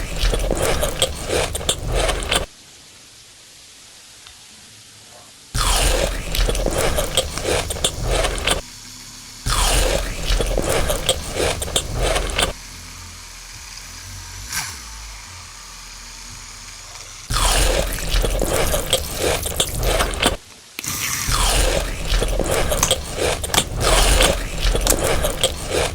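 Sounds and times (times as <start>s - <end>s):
crunchy food chewing: 0.0s - 2.5s, 5.6s - 8.6s, 9.5s - 12.6s, 17.3s - 25.9s.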